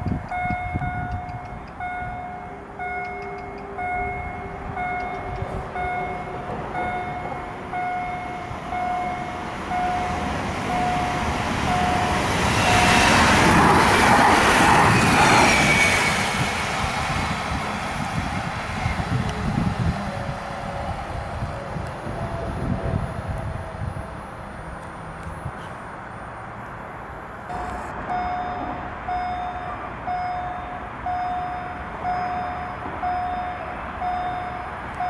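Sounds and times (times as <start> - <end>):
train passing: 0.0 - 35.0
level crossing warning beeps: 0.3 - 13.2, 27.5 - 35.0.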